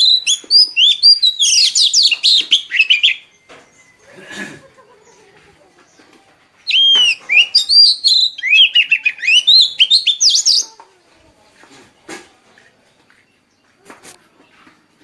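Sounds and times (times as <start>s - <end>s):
songbird warbling: 0.0s - 4.1s, 6.6s - 10.7s.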